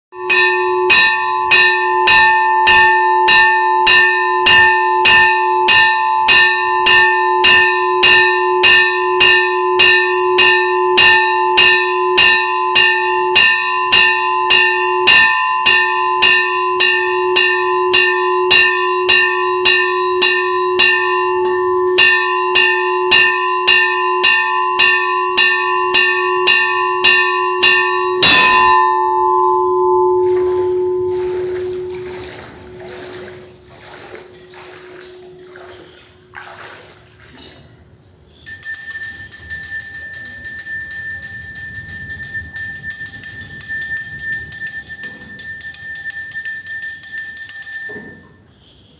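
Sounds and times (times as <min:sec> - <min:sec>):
temple bell struck rapidly: 0:00.2 - 0:33.2.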